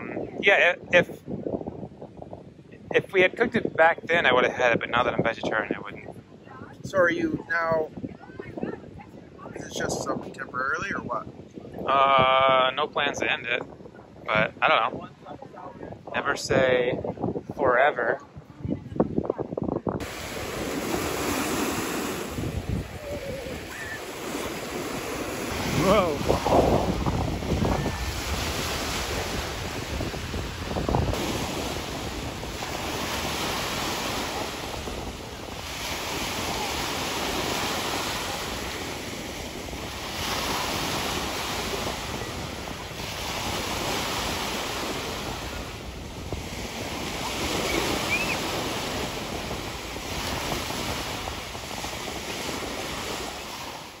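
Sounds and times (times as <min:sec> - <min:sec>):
wind buffeting microphone: 0:00.0 - 0:54.0
small waves washing onto beach: 0:20.0 - 0:54.0.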